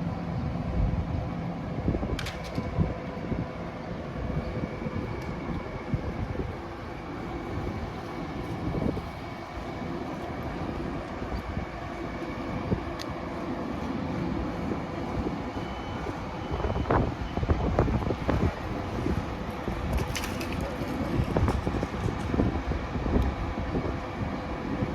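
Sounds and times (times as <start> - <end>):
train rumbling through station: 0.0 - 24.9
train clicks: 2.2 - 2.8.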